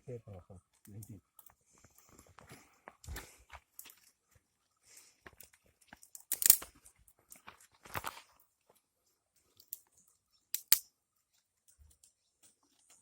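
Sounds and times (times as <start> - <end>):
dry twigs snapping: 5.3 - 8.2, 9.6 - 10.9.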